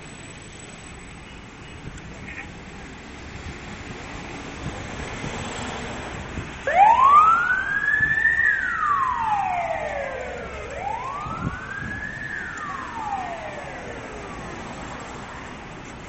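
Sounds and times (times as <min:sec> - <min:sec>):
siren wailing: 0:06.7 - 0:14.8.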